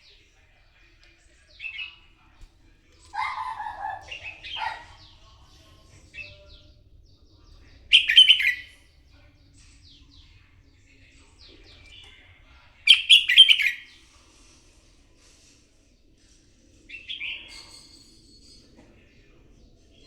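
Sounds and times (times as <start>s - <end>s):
bird chirping song: 3.0s - 14.0s, 16.9s - 20.0s.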